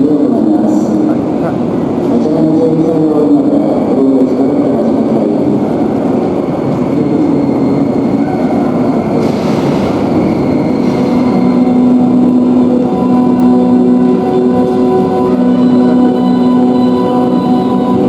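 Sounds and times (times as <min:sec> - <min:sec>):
train rumble: 0:00.0 - 0:18.0
steady held tones: 0:11.5 - 0:18.0.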